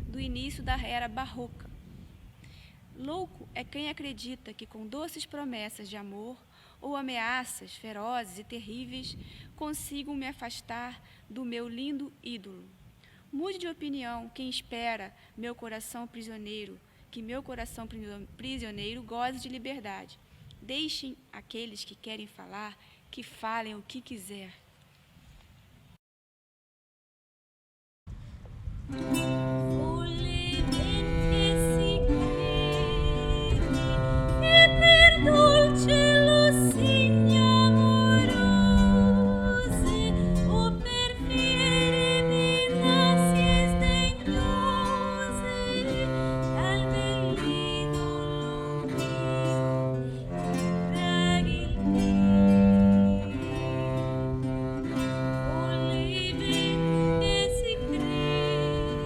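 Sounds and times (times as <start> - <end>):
bowed string bass line: 28.9 - 59.0
plucked string instrument: 28.9 - 59.0
woman singing: 29.3 - 59.0.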